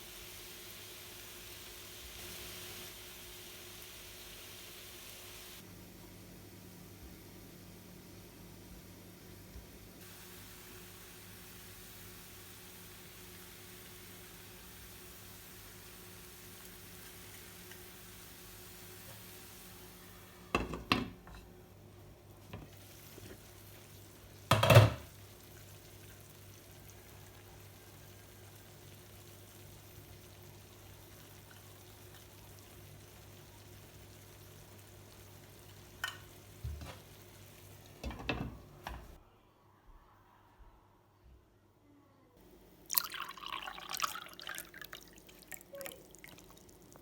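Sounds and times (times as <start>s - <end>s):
dishes and utensils clattering: 20.6s - 21.5s, 24.5s - 25.1s, 36.0s - 37.0s, 38.0s - 39.2s.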